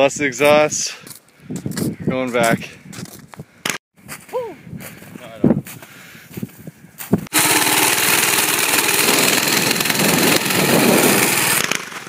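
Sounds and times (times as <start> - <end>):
small engine rattling loudly: 7.3 - 12.0.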